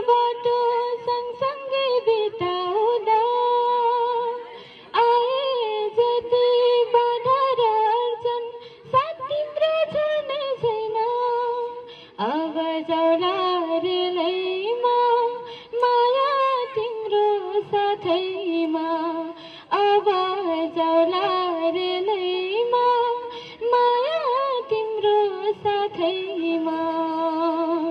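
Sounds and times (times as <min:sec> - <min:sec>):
woman singing: 0:00.0 - 0:27.9.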